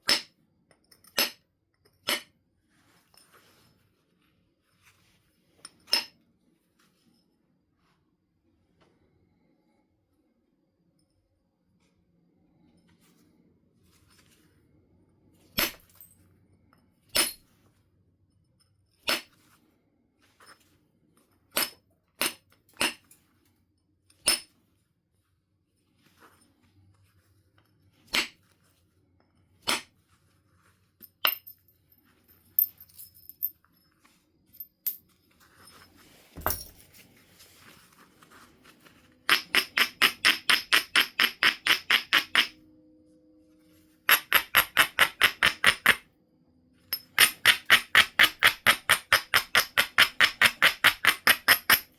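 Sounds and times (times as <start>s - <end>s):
billet striking flint: 39.3s - 42.6s, 44.1s - 46.0s, 46.9s - 51.9s.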